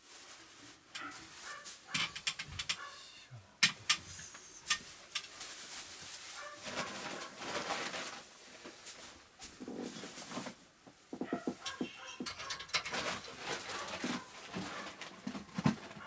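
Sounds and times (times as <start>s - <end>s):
rustling: 0.0s - 3.0s, 4.1s - 16.0s
sharp clicks and knocks: 1.9s - 2.8s.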